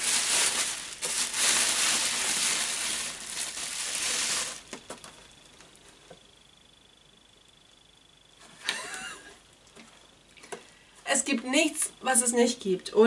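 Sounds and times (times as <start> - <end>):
packaging crinkling and rustling: 0.0 - 5.7.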